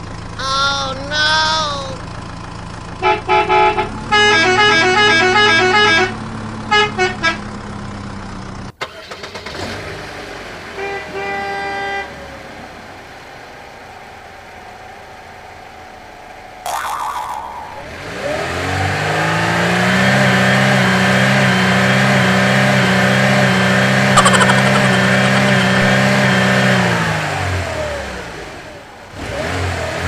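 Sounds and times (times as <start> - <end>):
vehicle horn honking: 3.0 - 7.4, 10.8 - 12.1.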